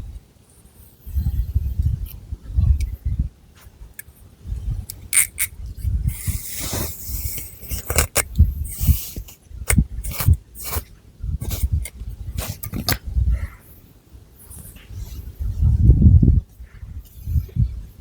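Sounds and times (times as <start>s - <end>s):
fingernails scratching hair and scalp: 4.9s - 13.0s.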